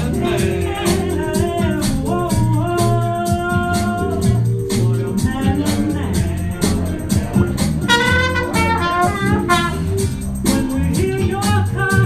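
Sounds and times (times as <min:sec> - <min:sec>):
bass line: 0:00.0 - 0:12.0
percussion hits: 0:00.0 - 0:12.0
shaker: 0:00.0 - 0:12.0
long held melody notes: 0:07.8 - 0:10.2.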